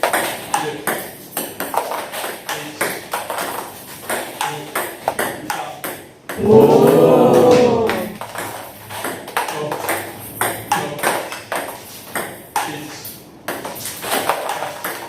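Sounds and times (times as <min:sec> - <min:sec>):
table tennis balls clicking: 0:00.0 - 0:06.4
loud rising and falling pitched sound: 0:06.4 - 0:08.2.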